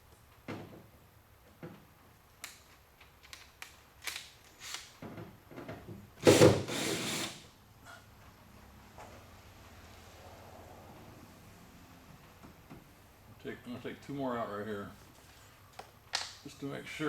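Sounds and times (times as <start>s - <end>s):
power drill running: 6.2s - 7.4s.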